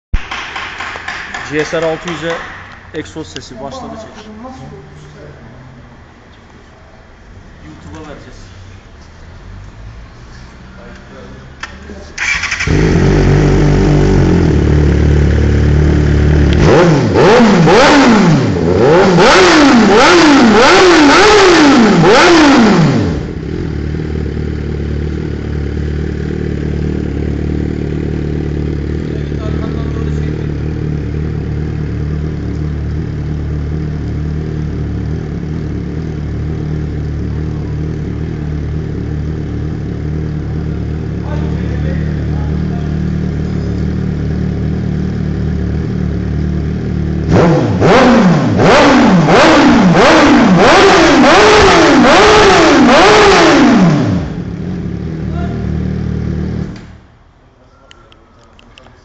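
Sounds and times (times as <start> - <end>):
motorcycle engine revving: 12.2 - 57.1.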